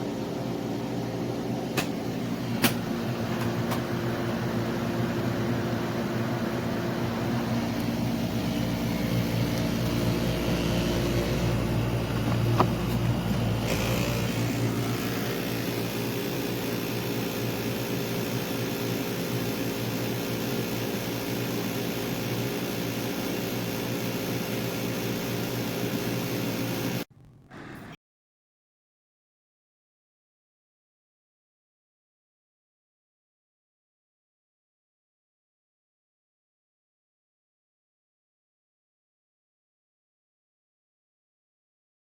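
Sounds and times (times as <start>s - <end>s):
air conditioner humming: 0.1s - 15.5s
air conditioner click: 1.7s - 2.0s, 2.6s - 3.9s.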